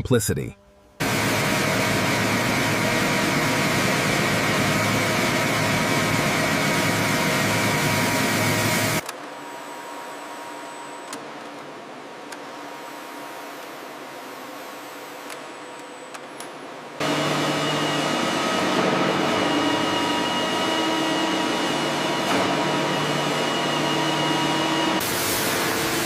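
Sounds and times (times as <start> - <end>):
high machine whine: 0.6 - 11.1, 17.0 - 26.0
woodworking machinery running: 1.0 - 9.0, 17.0 - 26.0.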